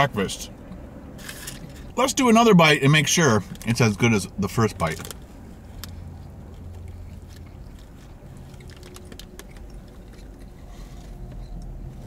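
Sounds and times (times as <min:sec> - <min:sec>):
low steady car hum: 0:00.0 - 0:12.0
man chewing food: 0:05.1 - 0:12.0.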